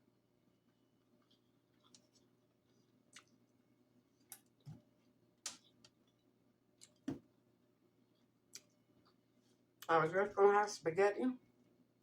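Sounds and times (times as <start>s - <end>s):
mouth clicks and smacks chewing: 1.2s - 3.5s.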